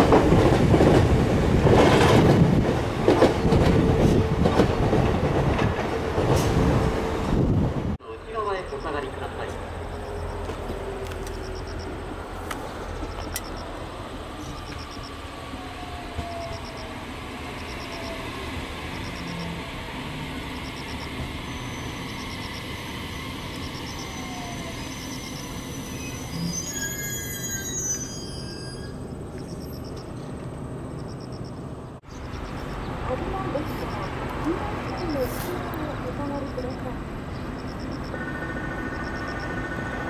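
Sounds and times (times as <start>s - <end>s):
high brake squeal: 21.4s - 22.8s, 23.6s - 29.9s.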